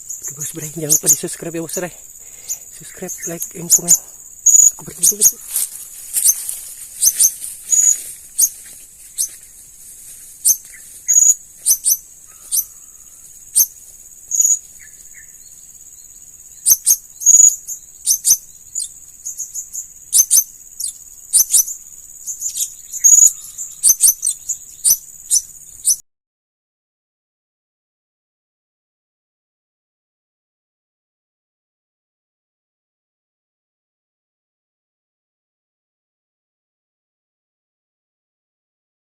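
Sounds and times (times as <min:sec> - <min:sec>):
high insect drone: 0:00.0 - 0:26.0
parrots high-pitched calls: 0:06.2 - 0:08.6, 0:10.4 - 0:13.7, 0:16.6 - 0:18.9, 0:20.1 - 0:21.7, 0:22.4 - 0:26.0.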